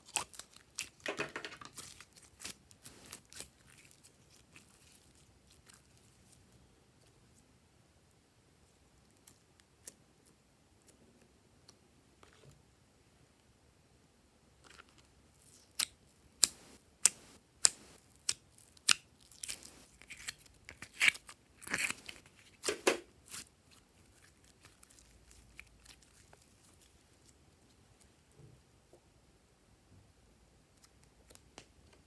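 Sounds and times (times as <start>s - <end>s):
slime clicking and squishing: 15.5s - 27.3s.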